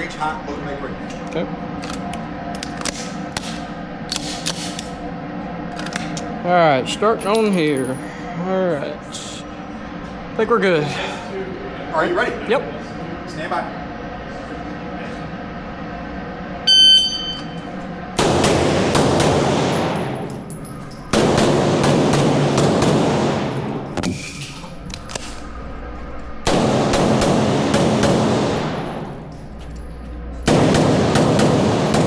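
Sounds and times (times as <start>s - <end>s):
shot timer beep: 16.7s - 17.6s
pistol shots echoing indoors: 18.2s - 24.0s, 26.4s - 29.4s, 30.4s - 32.0s.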